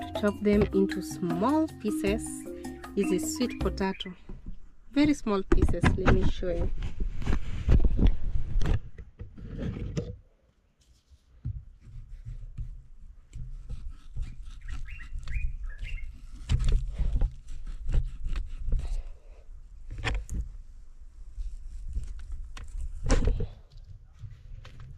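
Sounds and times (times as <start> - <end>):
bird chirping: 1.7 - 4.3, 14.5 - 16.2
knife cutting sweet potato: 13.5 - 15.5.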